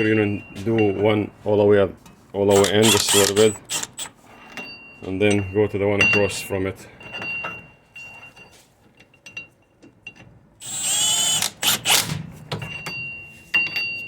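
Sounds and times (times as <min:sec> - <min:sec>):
ratchet wrench clicking: 0:02.5 - 0:04.1, 0:10.6 - 0:12.1.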